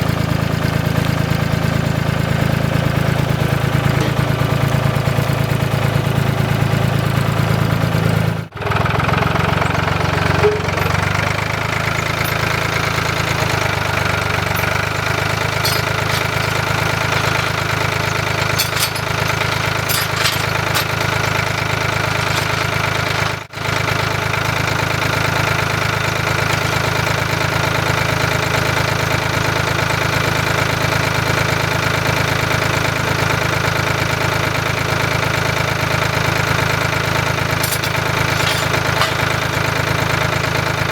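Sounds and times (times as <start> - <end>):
engine droning: 0.0 - 23.4.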